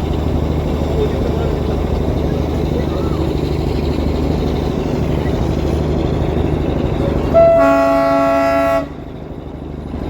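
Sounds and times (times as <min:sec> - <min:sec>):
train rumbling: 0:00.0 - 0:10.0
locomotive horn blast: 0:07.3 - 0:09.1.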